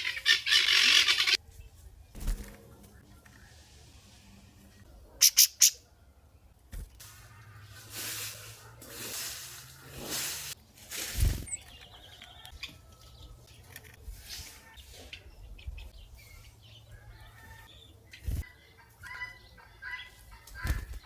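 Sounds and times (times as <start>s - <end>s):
small birds' wings flapping: 9.0s - 12.2s, 18.2s - 18.5s, 20.4s - 21.0s.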